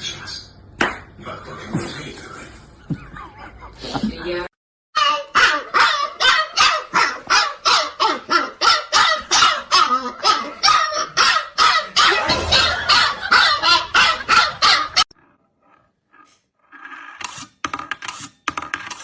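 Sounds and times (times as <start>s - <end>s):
dog barking rapidly: 5.0s - 15.0s.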